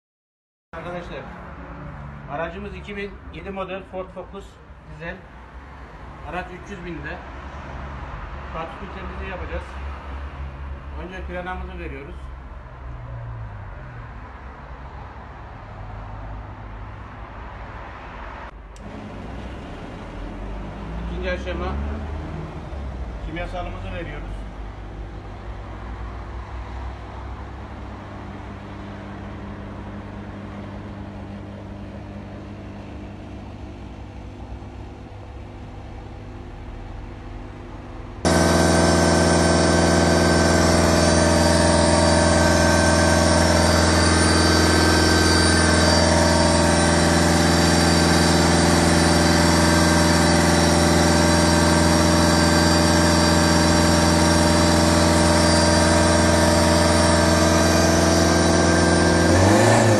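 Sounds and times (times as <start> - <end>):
diesel car engine running: 27.4 - 59.9.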